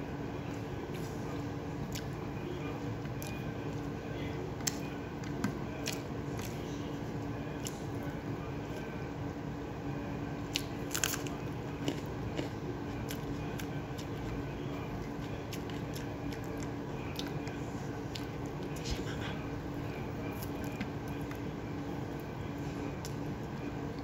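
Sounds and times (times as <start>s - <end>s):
steady low hum: 0.0s - 24.0s
person chewing with crunches: 0.4s - 2.2s, 3.0s - 3.9s, 4.6s - 6.8s, 10.4s - 24.0s.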